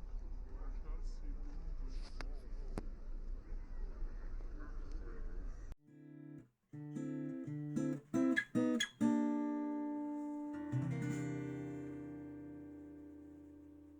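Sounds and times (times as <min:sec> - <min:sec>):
guitar plucked notes and chords: 0:05.9 - 0:13.9.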